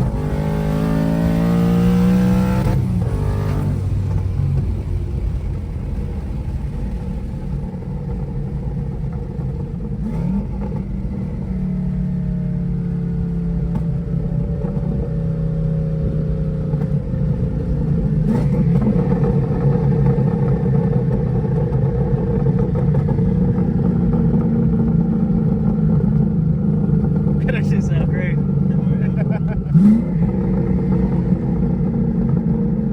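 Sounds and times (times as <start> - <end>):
car engine running at low revs: 0.0 - 32.9.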